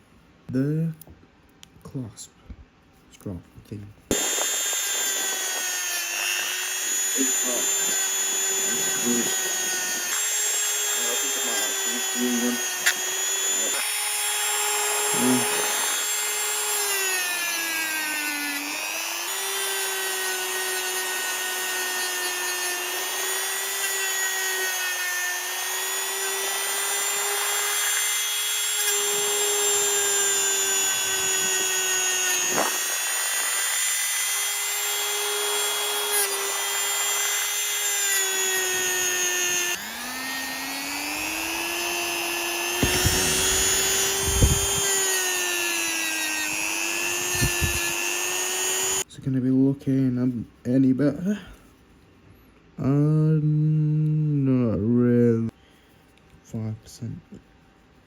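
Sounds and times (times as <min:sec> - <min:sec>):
rotary polishing tool whine: 0:04.1 - 0:49.1.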